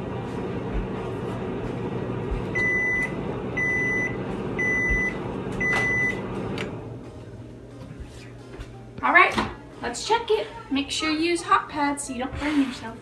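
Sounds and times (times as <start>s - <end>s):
microwave oven humming: 0.0s - 10.9s
microwave beeping: 1.8s - 7.0s.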